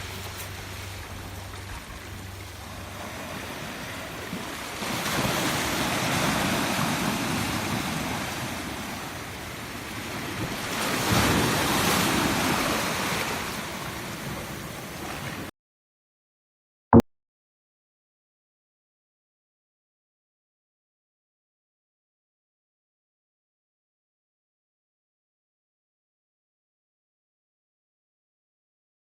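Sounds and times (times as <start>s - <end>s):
sea surf breaking on shore: 0.0s - 15.5s.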